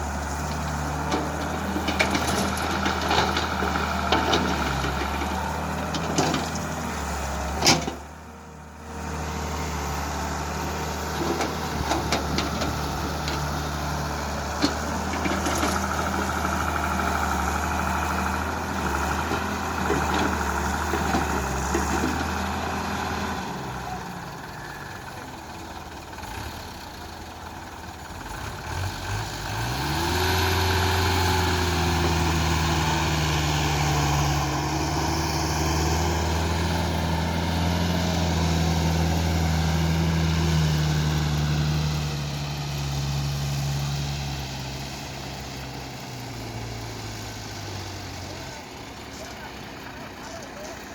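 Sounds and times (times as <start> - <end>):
engine revving: 0.0 - 8.0, 8.8 - 24.4, 28.2 - 49.3
heavy diesel engines running: 0.0 - 50.9.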